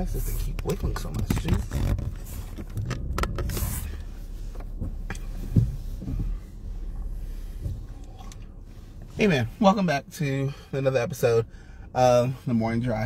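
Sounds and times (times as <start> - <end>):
car engine idling: 0.0 - 13.0
low thump: 4.6 - 8.0.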